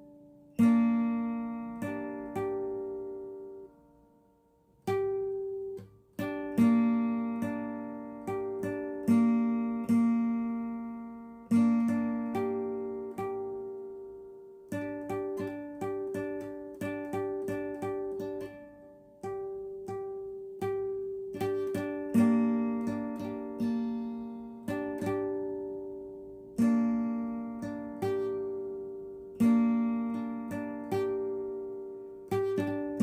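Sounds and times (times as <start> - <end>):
acoustic guitar strumming: 0.0 - 33.0.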